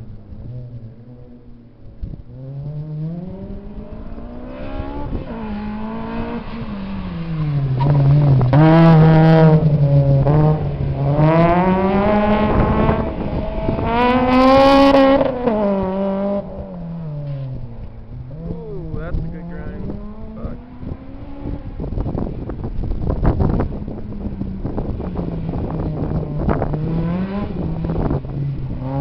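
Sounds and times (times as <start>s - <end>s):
car engine revving hard: 2.7s - 16.6s, 23.4s - 29.0s.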